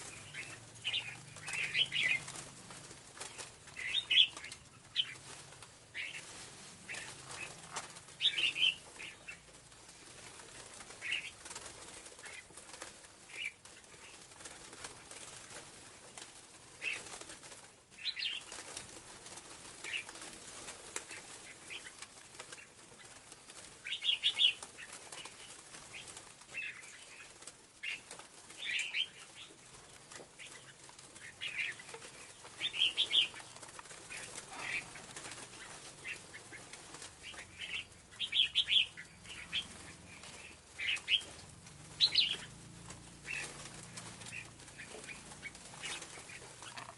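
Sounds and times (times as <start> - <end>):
bird high-pitched calls: 0.1 - 2.4, 3.8 - 5.2, 8.2 - 9.4, 32.6 - 41.4, 42.0 - 42.5.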